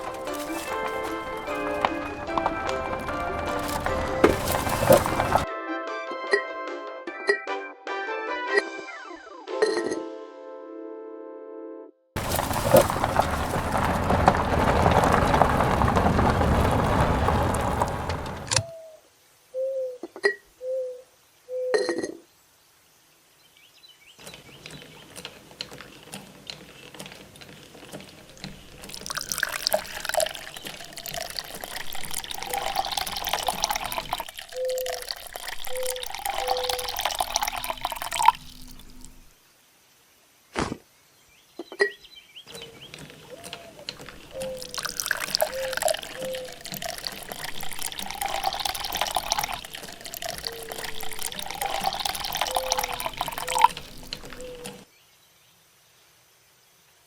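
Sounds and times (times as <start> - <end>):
water pouring and splashing: 0.0 - 5.5, 12.2 - 18.7, 27.9 - 39.4, 43.9 - 54.9.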